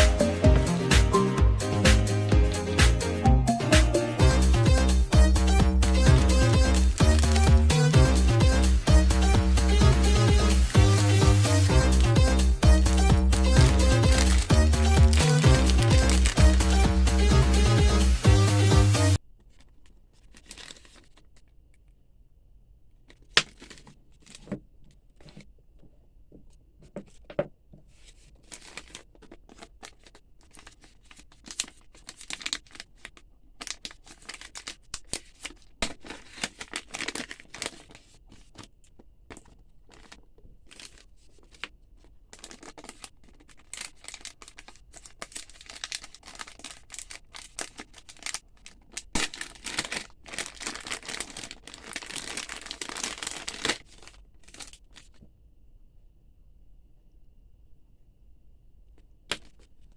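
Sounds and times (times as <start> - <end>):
plastic packaging crinkling: 6.0 - 8.0, 11.8 - 16.8, 19.2 - 21.9, 23.0 - 25.4, 27.9 - 55.3.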